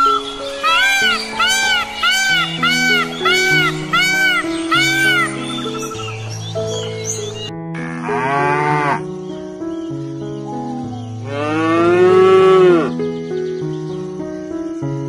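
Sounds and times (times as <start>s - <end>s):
soft background music: 0.0s - 15.0s
cow mooing: 7.8s - 9.0s, 11.3s - 12.9s.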